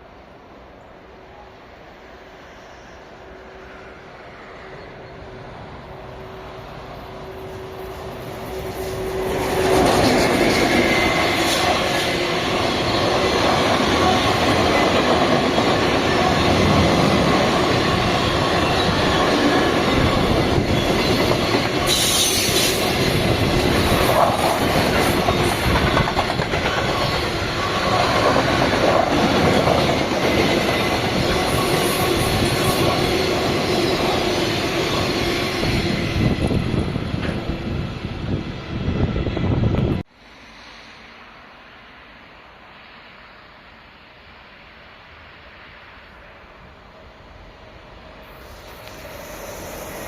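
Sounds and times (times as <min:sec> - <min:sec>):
train wheels clattering over rails: 0:08.5 - 0:37.5.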